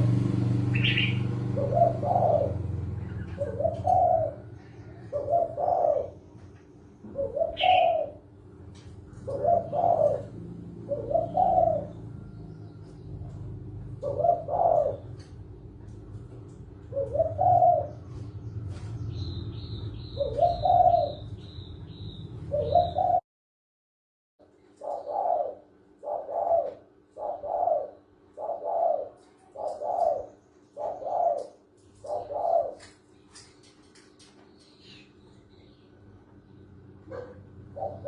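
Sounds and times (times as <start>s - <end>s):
doves cooing: 0.0s - 23.2s, 24.4s - 38.0s
low background hum: 0.0s - 23.2s, 24.4s - 38.0s
bird chirping quickly: 0.6s - 4.4s, 17.0s - 23.2s.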